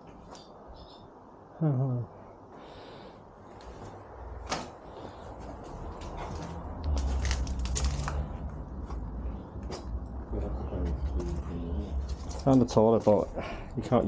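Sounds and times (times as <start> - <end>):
low rumble: 5.6 - 12.5.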